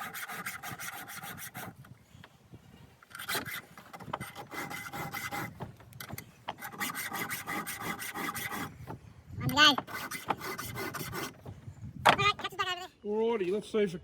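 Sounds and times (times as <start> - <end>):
hand file rasping on chain: 0.0 - 1.9, 3.1 - 11.5.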